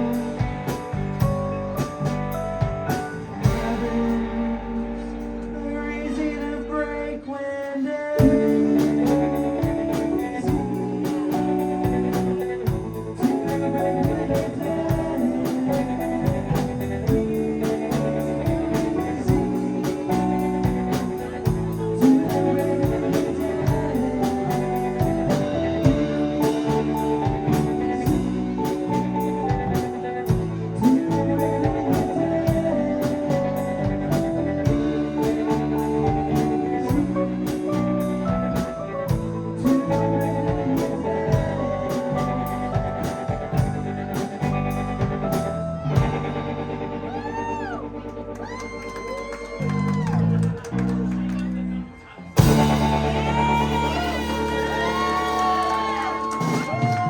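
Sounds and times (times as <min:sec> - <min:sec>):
driving drum beat and cymbals: 0:00.0 - 0:04.2, 0:08.2 - 0:46.3, 0:52.4 - 0:57.0
live rock band playing: 0:00.0 - 0:06.0, 0:08.2 - 0:57.0.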